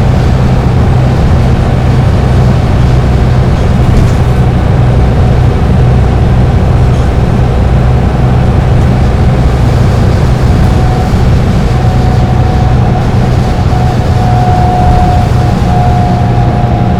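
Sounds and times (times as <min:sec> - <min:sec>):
bus engine running: 0:00.0 - 0:16.9
faint high whine: 0:09.7 - 0:16.9.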